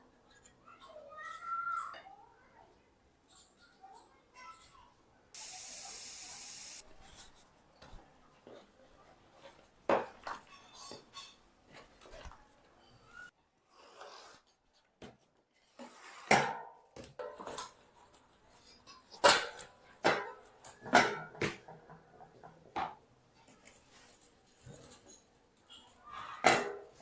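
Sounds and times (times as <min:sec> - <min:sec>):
metal tools clinking and tapping: 0:10.2 - 0:11.9.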